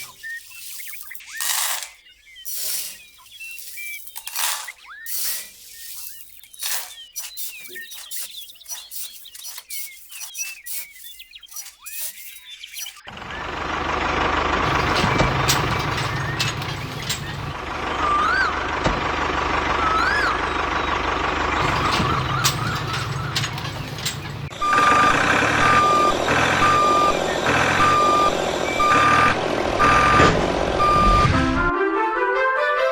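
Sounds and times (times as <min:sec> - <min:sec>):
short chirps: 0:00.0 - 0:13.1
short squeaks: 0:00.0 - 0:13.1, 0:14.6 - 0:19.2, 0:21.6 - 0:31.4
truck-like engine running with hiss: 0:02.5 - 0:04.5, 0:13.1 - 0:31.7.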